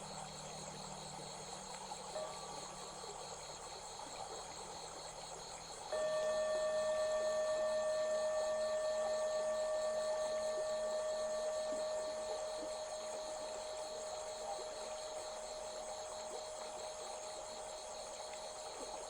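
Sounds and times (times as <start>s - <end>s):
crickets chirring: 0.0s - 19.0s
loud steady ringing tone: 5.9s - 19.0s.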